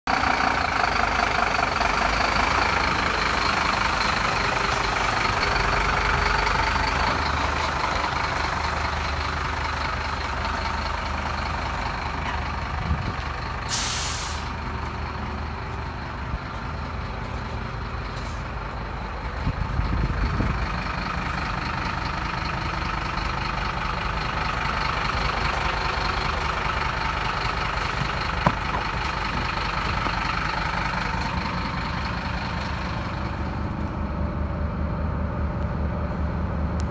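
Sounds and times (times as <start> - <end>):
truck diesel engine running: 0.1 - 36.9
air hiss: 13.7 - 14.5.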